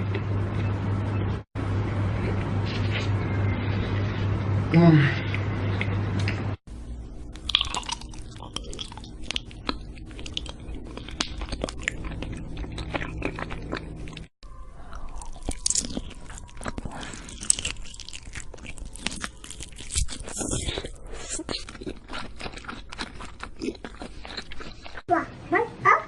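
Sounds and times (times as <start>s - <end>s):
crunchy food being chewed: 7.3s - 25.1s.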